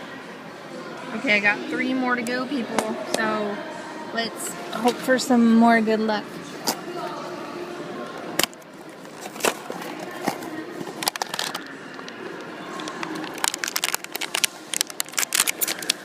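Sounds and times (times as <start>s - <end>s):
packaging crinkling: 9.1s - 16.0s.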